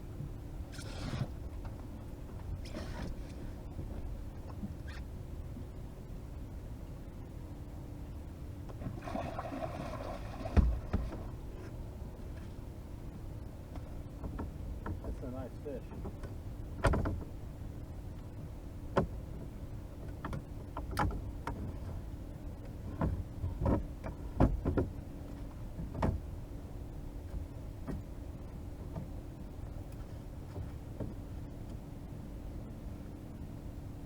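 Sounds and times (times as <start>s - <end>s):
knocks and thumps in boat: 0.1s - 5.8s, 8.6s - 32.1s.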